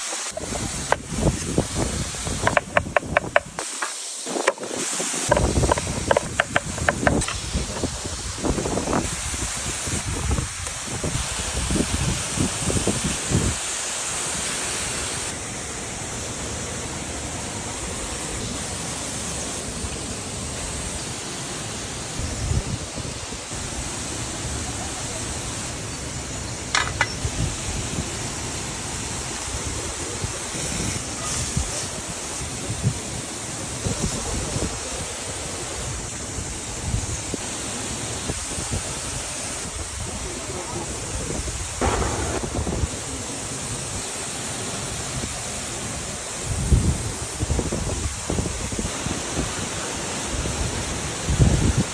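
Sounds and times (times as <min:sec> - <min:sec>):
river water rushing: 0:00.0 - 0:12.5, 0:34.6 - 0:47.6
wind buffeting microphone: 0:00.2 - 0:03.6, 0:04.2 - 0:13.6, 0:22.2 - 0:23.7, 0:38.2 - 0:44.2, 0:46.0 - 0:49.6.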